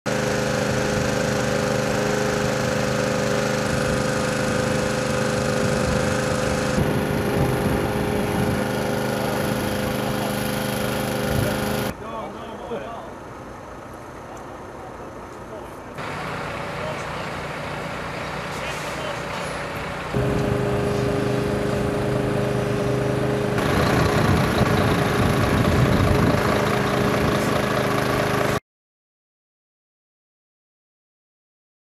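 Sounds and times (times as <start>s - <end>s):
heavy vehicle engine running: 0.1s - 12.0s, 12.8s - 28.6s.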